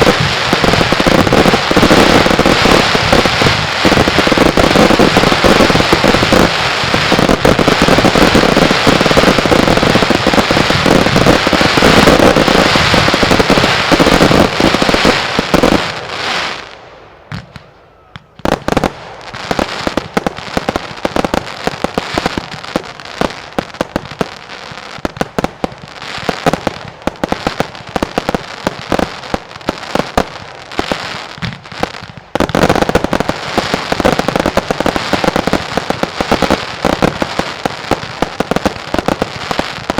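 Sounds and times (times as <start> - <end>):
firecrackers banging and crackling: 0.0 - 39.9.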